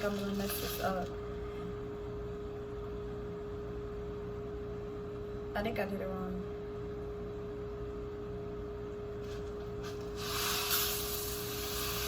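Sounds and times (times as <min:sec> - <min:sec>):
loud hiss: 0:00.0 - 0:01.1, 0:09.8 - 0:12.0
steady hum: 0:00.0 - 0:12.0.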